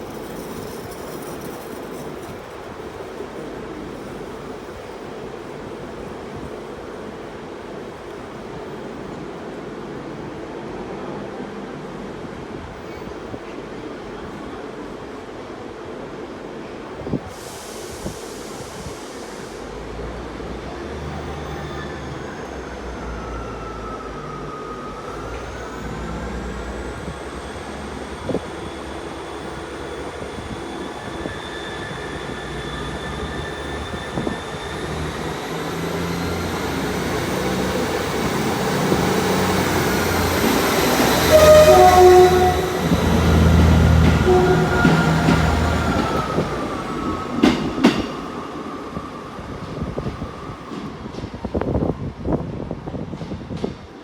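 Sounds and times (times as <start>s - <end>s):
train engine hum: 0.0s - 54.0s
gliding whines: 21.3s - 50.7s
high squealing tones: 23.3s - 49.6s.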